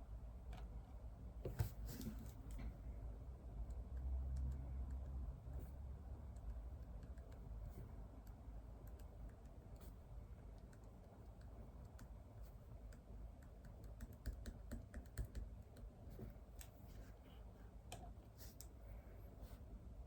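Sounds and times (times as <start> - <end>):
faint keyboard typing: 3.6 - 16.8.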